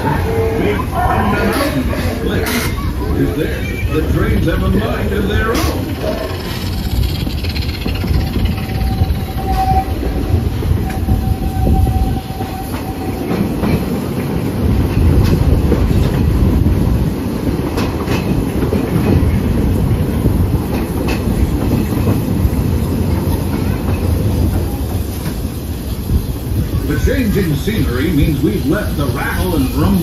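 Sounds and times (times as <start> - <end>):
train car rumbling: 0.0 - 30.0
wheels clacking over rail joints: 4.2 - 26.8.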